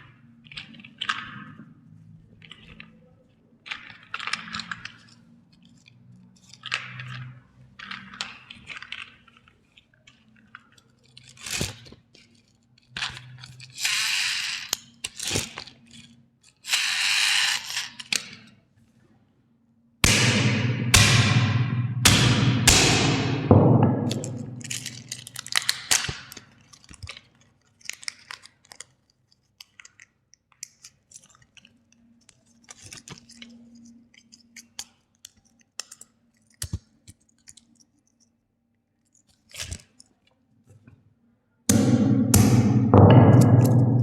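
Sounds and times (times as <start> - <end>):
plastic toys being handled: 0.0 - 19.1, 24.6 - 41.1
loud crunching hits: 20.0 - 25.5.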